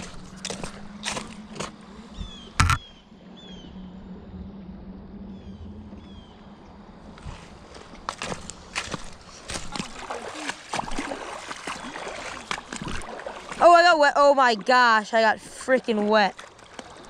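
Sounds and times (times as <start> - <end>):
footsteps on stones: 0.0 - 1.7, 7.2 - 10.0
steady low hum: 0.0 - 12.4.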